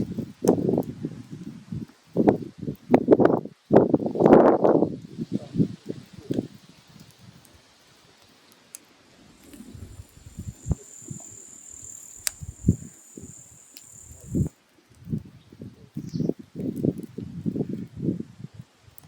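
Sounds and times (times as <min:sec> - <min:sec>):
firewood crackling: 0:00.0 - 0:15.2
high-pitched hiss or whistle: 0:09.4 - 0:14.5
sharp pops: 0:09.4 - 0:14.5.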